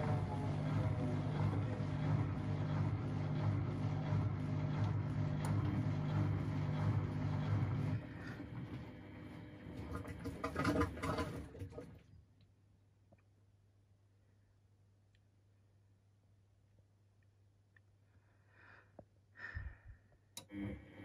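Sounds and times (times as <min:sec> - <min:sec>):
washing machine humming: 0:00.0 - 0:12.6, 0:20.4 - 0:21.0.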